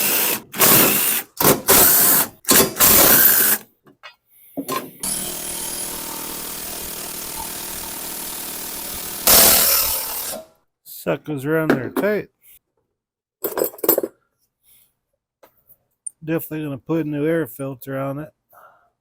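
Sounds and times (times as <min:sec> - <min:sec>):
power drill spinning out bolts: 0:00.0 - 0:03.6, 0:05.0 - 0:10.5.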